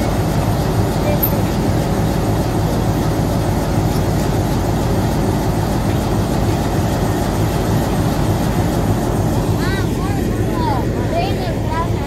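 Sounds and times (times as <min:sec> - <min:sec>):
low rumble of a train: 0:00.0 - 0:12.0.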